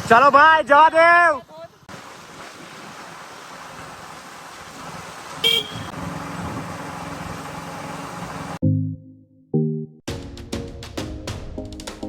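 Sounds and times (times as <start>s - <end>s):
road and wind noise: 0.0s - 8.6s
low engine hum: 3.9s - 8.6s
car horn beep: 5.4s - 6.0s
music: 8.6s - 12.0s.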